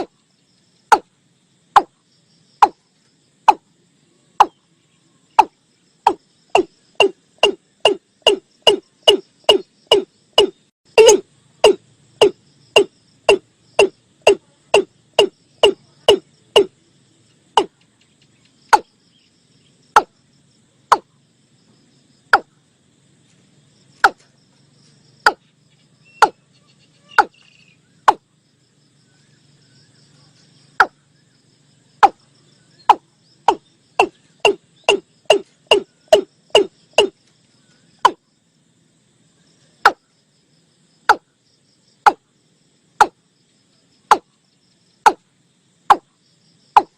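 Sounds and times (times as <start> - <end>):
faint high insect hiss: 0.0 - 46.9
bird calling deep hollow notes: 5.3 - 16.8, 25.3 - 28.3, 32.0 - 37.2.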